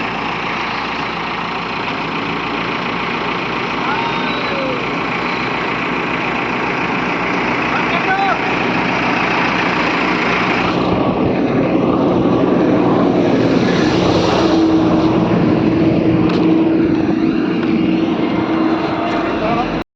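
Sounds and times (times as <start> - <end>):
concrete mixer diesel engine: 0.0 - 19.8
higher hum: 11.1 - 17.7.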